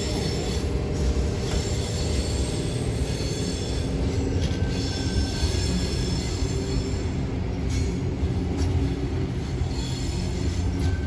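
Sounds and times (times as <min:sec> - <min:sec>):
electric train wheels rumbling on rails: 0:00.0 - 0:11.0.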